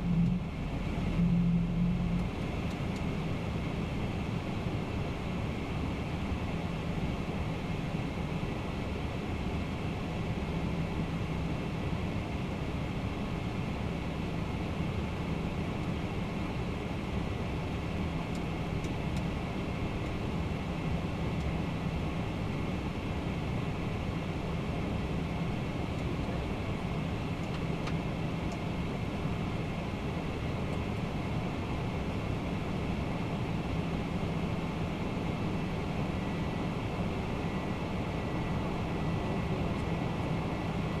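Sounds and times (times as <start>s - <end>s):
faint steady tone: 0.0s - 6.2s, 19.8s - 41.0s
airflow rush and engine hum: 0.0s - 41.0s.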